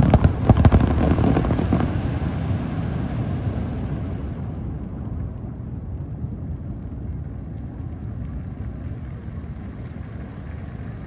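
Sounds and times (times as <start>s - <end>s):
fireworks crackles: 0.0s - 2.8s
fireworks booming: 0.0s - 5.1s.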